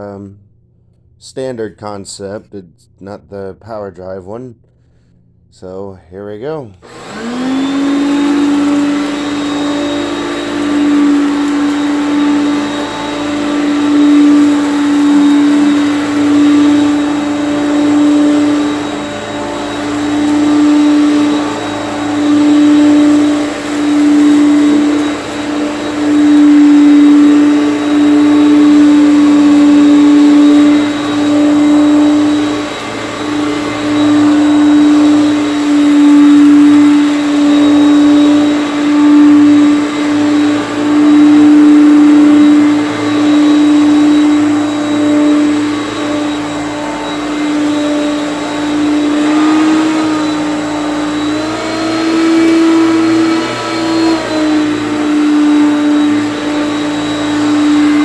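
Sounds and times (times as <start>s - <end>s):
vacuum cleaner running: 6.8s - 58.0s.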